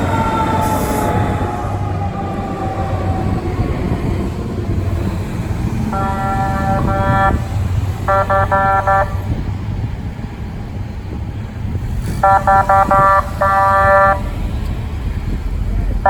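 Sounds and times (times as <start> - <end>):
engine rumble: 0.0 - 16.0
air horn blasts: 5.9 - 9.4, 12.2 - 14.4.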